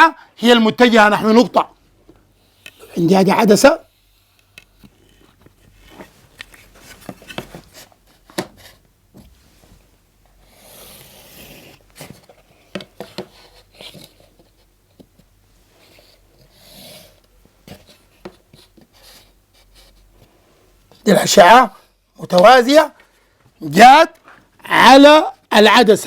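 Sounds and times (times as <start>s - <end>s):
pen drawing on a board: 10.4s - 11.8s, 15.8s - 17.2s
pen rasping along ruler: 10.5s - 11.8s, 15.8s - 17.2s.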